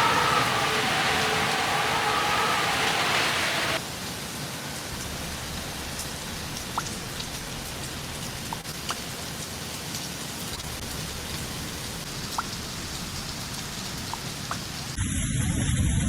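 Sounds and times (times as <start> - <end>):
heavy rain hissing: 0.0 - 9.9.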